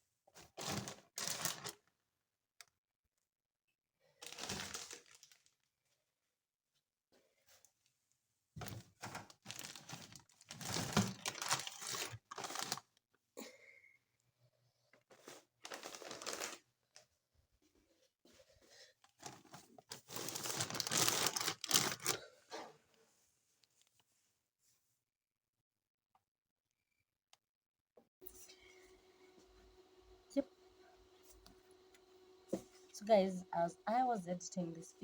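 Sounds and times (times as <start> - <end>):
leafy greens and wrapping crinkling: 0.4 - 1.8, 4.2 - 5.6, 9.0 - 12.9, 15.1 - 17.0, 18.7 - 22.3.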